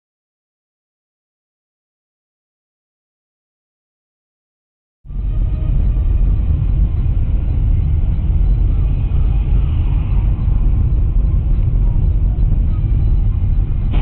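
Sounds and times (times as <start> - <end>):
car engine and road rumble: 5.1 - 14.0.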